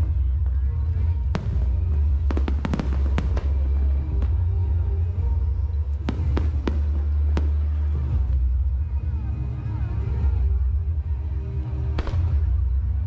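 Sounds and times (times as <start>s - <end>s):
low rumble: 0.0s - 13.0s
fireworks bangs: 0.9s - 5.2s, 5.8s - 8.5s, 12.0s - 12.6s.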